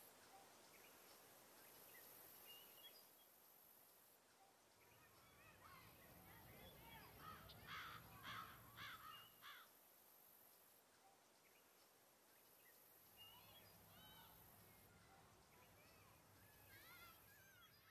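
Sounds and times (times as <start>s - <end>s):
steady high hiss: 0.0s - 17.9s
birds calling: 4.4s - 9.8s, 11.2s - 17.9s.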